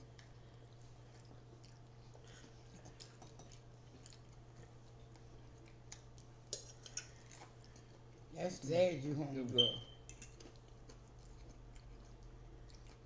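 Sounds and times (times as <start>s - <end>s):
chewing and mouth sounds: 0.0s - 13.0s
low electrical hum: 0.0s - 13.0s.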